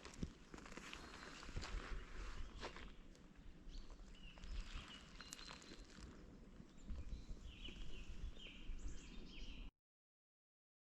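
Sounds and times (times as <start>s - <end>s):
footsteps in snow: 0.0s - 2.9s.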